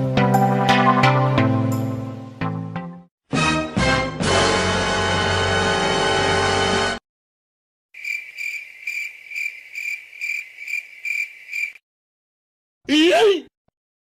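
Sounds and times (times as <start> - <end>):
music cue: 0.0 - 5.4
cricket chirping: 8.0 - 11.8.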